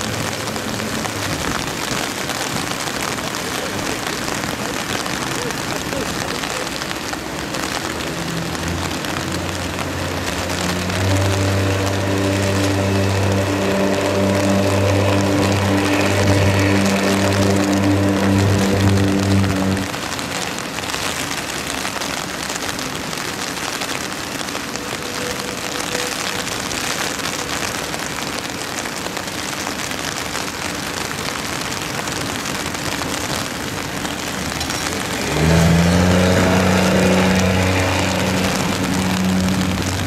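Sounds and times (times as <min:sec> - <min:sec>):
heavy rain hissing: 0:00.0 - 0:40.0
jet airliner landing: 0:10.4 - 0:19.9.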